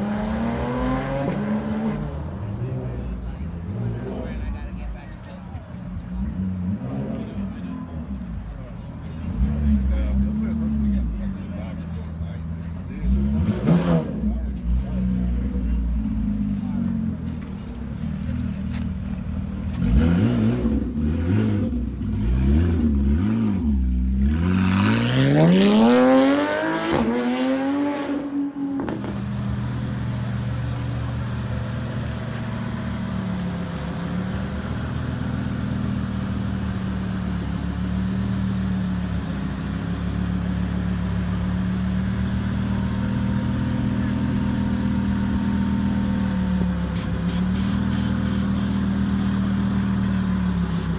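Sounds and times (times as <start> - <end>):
car exhaust revving and accelerating: 0.0 - 12.0, 12.6 - 50.9
engine idling: 29.0 - 50.9.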